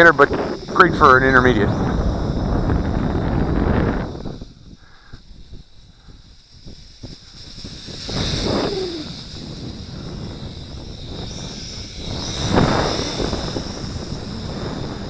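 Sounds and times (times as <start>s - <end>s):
drone motors whining: 0.0s - 15.0s
wind buffeting microphone: 0.0s - 15.0s.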